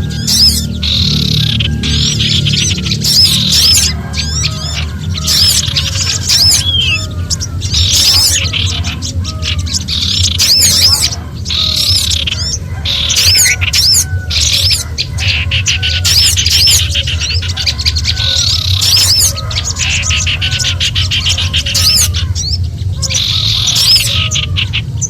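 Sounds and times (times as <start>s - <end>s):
bird slurred whistles: 0.0s - 7.1s
songbirds alarm calls: 0.0s - 25.0s
steady low hum: 0.0s - 25.0s.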